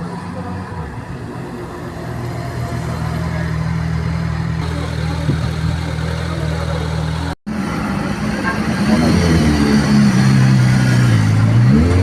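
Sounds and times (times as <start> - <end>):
engine idling: 3.0 - 7.4.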